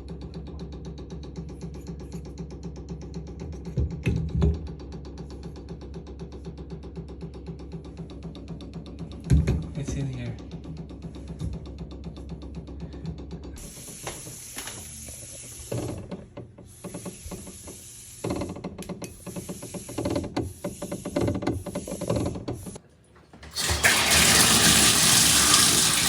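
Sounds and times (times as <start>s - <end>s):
pipes rattling and knocking: 15.7s - 26.0s
water flowing through shower: 23.4s - 26.0s.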